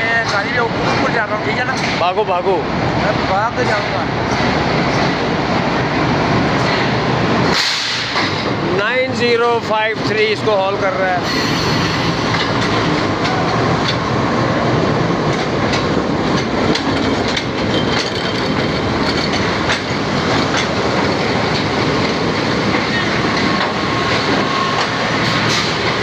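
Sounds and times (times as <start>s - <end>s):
train rumbling on rails: 0.0s - 26.0s
wheels clicking over rail joints: 12.3s - 14.1s, 15.0s - 26.0s.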